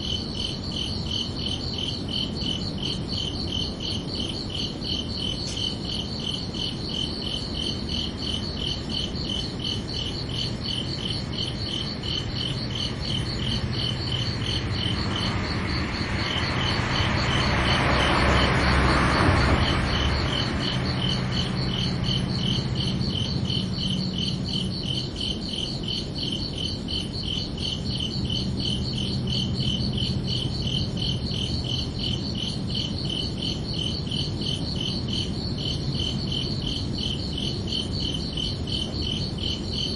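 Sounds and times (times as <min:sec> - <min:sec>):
crickets chirping: 0:00.0 - 0:39.9
broad rushing noise: 0:11.2 - 0:25.2.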